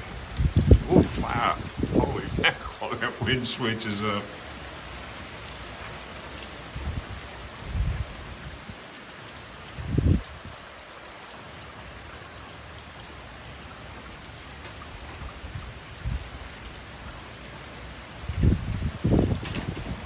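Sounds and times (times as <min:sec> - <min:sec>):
wind buffeting microphone: 0:00.0 - 0:05.0, 0:05.6 - 0:08.8, 0:09.7 - 0:10.7, 0:14.9 - 0:17.3, 0:18.2 - 0:20.0
rain falling: 0:00.0 - 0:20.0.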